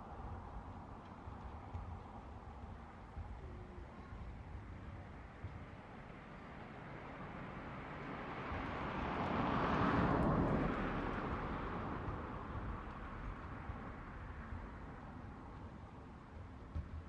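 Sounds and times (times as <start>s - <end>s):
vehicle passing by: 7.6s - 13.8s.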